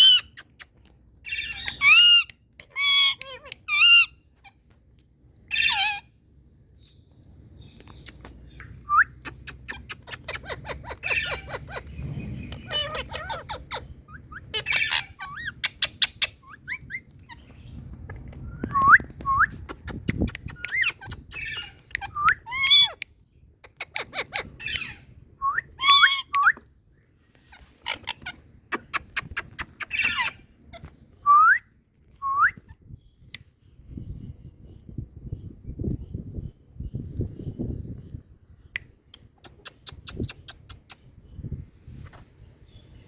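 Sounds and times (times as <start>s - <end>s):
parakeet squawks: 1.3s - 4.6s, 5.5s - 6.1s, 9.3s - 17.5s, 20.7s - 23.0s, 27.5s - 30.9s
sharp clicks: 19.6s - 22.1s.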